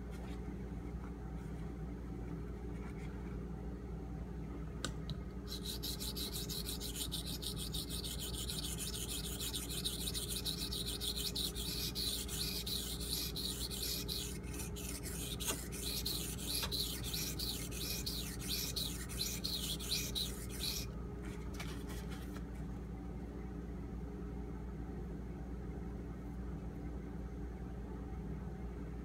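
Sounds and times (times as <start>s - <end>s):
low steady hum: 0.0s - 29.0s
knife scraping on whetstone: 5.5s - 20.9s.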